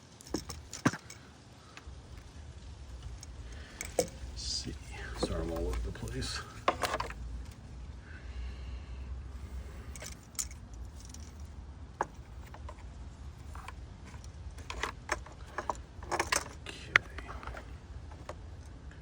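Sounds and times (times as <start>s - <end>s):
plastic clips clicking and rattling: 13.4s - 18.4s.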